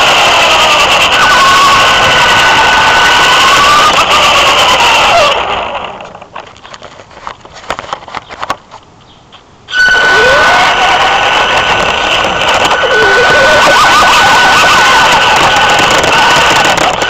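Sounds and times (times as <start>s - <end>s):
electric motor whining: 0.0s - 6.2s, 9.7s - 17.0s.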